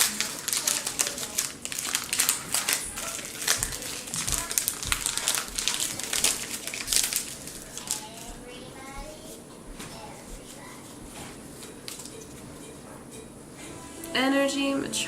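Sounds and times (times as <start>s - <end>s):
foil wrapper crinkling: 0.0s - 9.4s, 11.4s - 12.4s.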